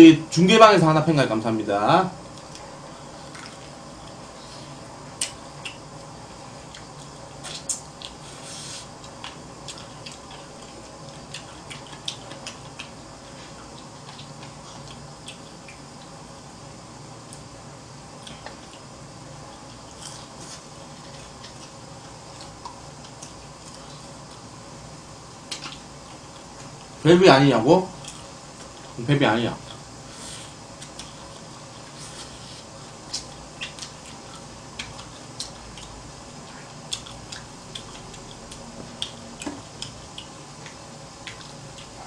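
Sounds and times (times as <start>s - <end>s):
wet chewing: 2.3s - 16.2s, 18.2s - 24.5s, 30.8s - 42.0s.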